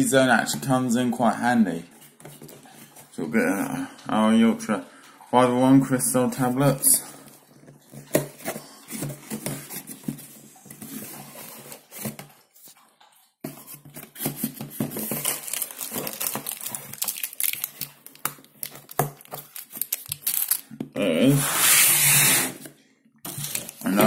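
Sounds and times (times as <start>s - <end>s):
packaging crinkling: 13.7s - 20.8s, 23.3s - 24.0s.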